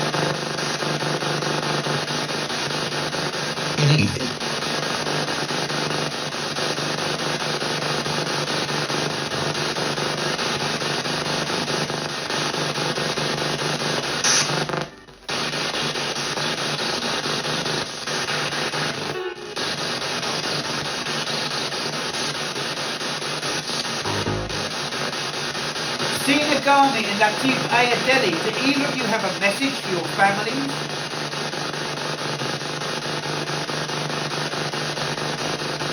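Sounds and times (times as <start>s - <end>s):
radio static hiss: 0.0s - 35.9s
electronic blip: 14.2s - 14.6s, 24.0s - 24.7s.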